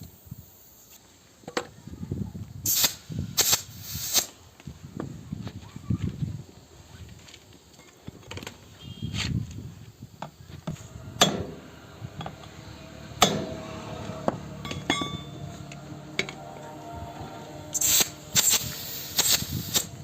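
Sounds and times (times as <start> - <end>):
hard ringing metal strikes: 11.2 - 11.7, 13.1 - 16.6
metal tools clinking: 14.6 - 16.4.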